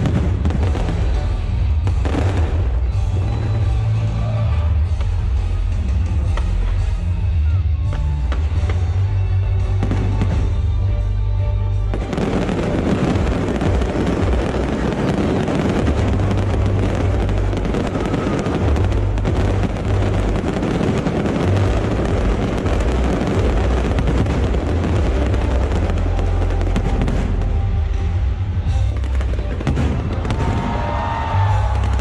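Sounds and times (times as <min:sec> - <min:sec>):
deep rumble: 0:00.0 - 0:32.0
fireworks bangs and crackles: 0:00.0 - 0:32.0.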